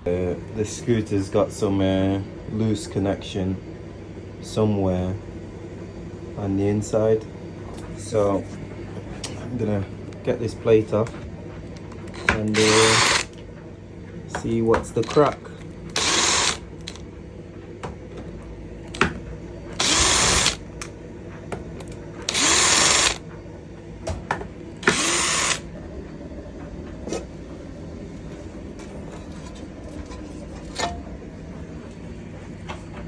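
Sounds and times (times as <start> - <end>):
cordless drill running: 12.1 - 13.4, 15.9 - 17.0, 19.8 - 20.7, 22.2 - 23.2, 24.8 - 25.7.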